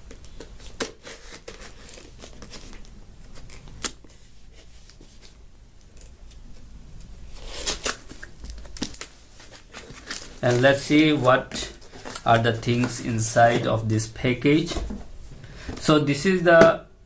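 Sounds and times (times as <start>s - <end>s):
packaging crinkling and tearing: 0.1s - 4.2s, 7.3s - 13.9s.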